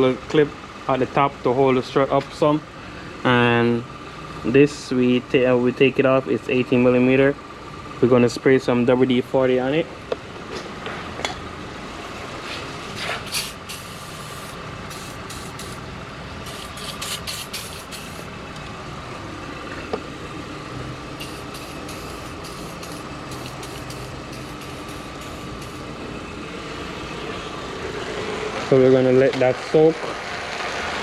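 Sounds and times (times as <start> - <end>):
aerosol can spraying: 13.1 - 15.8, 16.4 - 18.3, 21.2 - 26.0.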